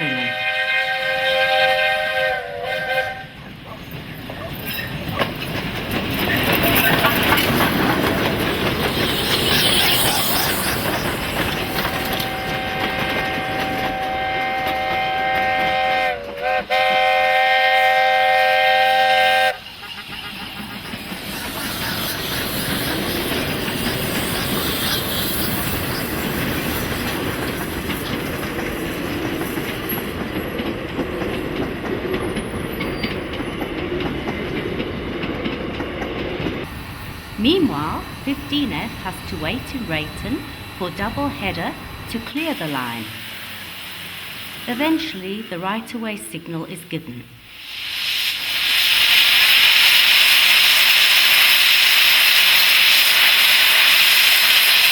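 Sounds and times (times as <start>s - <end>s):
steam whistle blast: 0.0s - 3.3s, 12.0s - 20.4s
steam train running: 0.0s - 54.9s.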